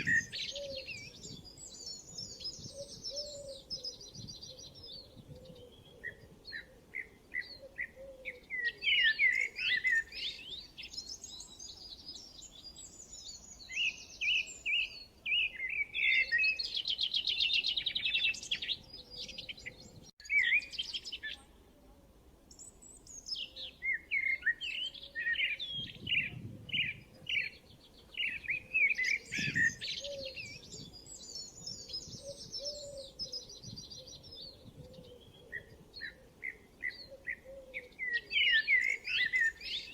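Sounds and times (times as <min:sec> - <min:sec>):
songbirds chirping and singing: 0:00.0 - 0:21.5, 0:22.5 - 0:39.9.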